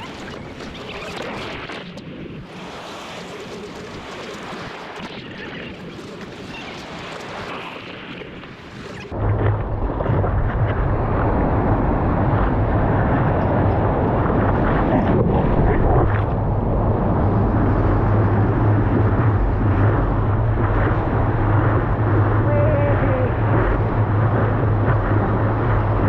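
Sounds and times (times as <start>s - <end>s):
vehicle running drone: 9.1s - 26.0s.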